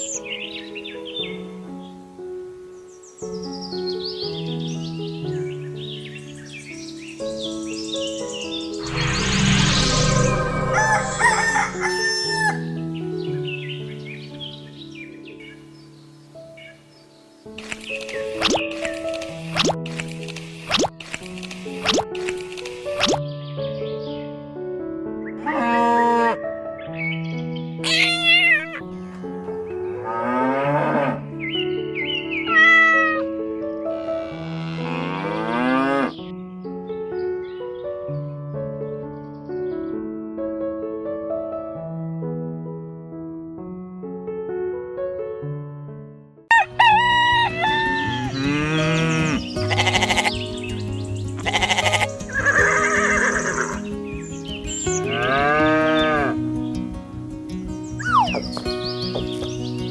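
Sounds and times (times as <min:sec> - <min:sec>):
background music: 0:00.0 - 0:34.4, 0:46.5 - 0:59.9
rooster crowing: 0:10.2 - 0:12.7, 0:46.5 - 0:48.7
animal calls: 0:46.5 - 0:50.4, 0:51.4 - 0:53.8, 0:58.0 - 0:59.5
music with held notes: 0:46.6 - 0:59.9.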